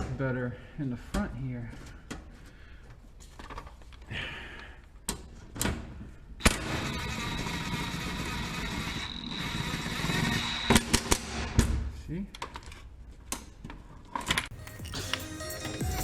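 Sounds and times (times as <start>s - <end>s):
impact wrench whirring: 6.4s - 11.5s.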